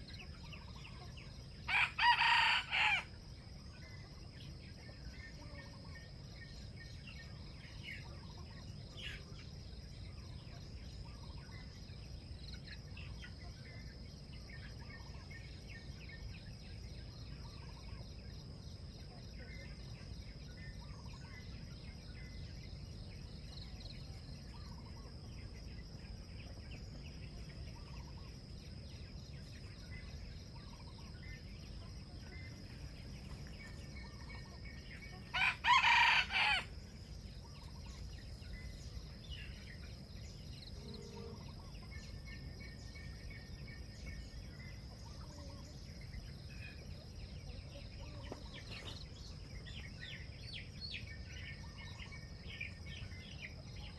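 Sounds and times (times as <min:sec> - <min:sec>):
small birds chirping: 0:00.0 - 0:03.0, 0:03.7 - 0:53.9
rooster crowing: 0:01.7 - 0:03.1, 0:35.3 - 0:36.8.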